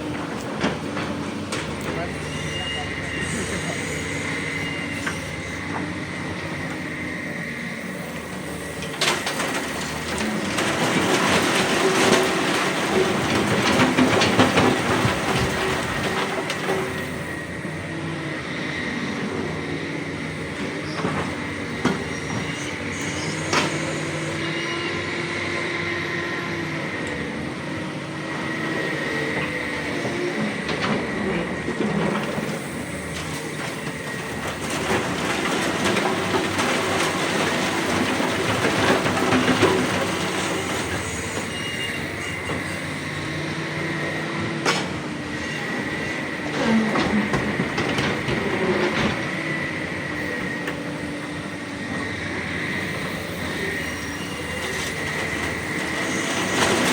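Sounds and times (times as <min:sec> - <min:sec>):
metal bucket and tracks clanking: 0:00.0 - 0:06.9, 0:08.3 - 0:17.4, 0:28.4 - 0:50.9, 0:51.9 - 0:56.9
diesel engines whining under load: 0:00.0 - 0:56.9.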